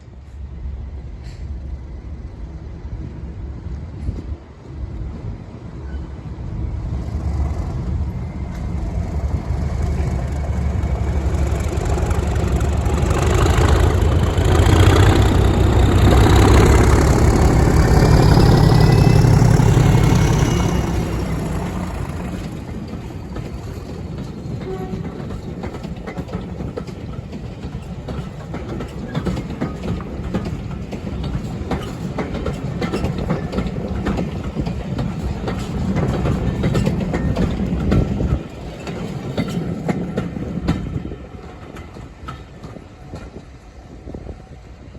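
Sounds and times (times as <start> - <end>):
diesel locomotive engine rumble: 0.0 - 44.9
wheels clicking over rail joints: 8.4 - 43.5.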